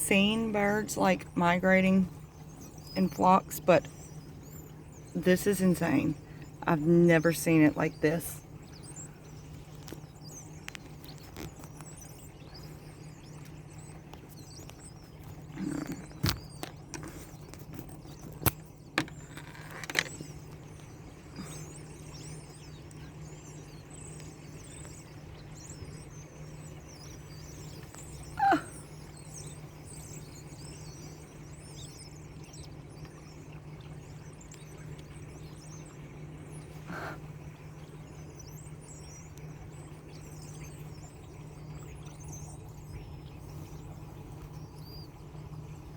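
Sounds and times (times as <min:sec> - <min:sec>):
flock of birds chattering: 0:00.0 - 0:45.9
bird call falling in pitch: 0:28.3 - 0:28.8.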